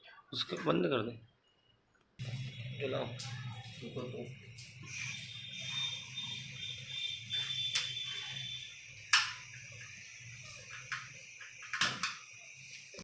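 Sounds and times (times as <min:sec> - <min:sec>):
gas stove igniter clicks: 0:07.7 - 0:08.0, 0:09.1 - 0:09.9, 0:10.7 - 0:12.3.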